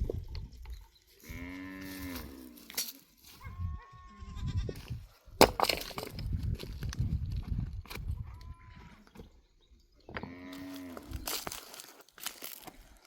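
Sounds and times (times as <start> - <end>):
farm animal calling: 3.3 - 5.0, 10.0 - 11.5.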